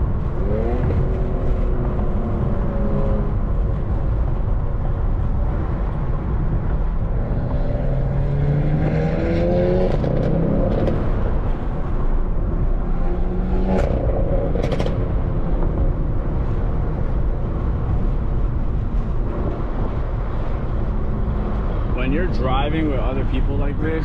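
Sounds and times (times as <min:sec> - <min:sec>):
car engine accelerating: 0:05.6 - 0:12.2.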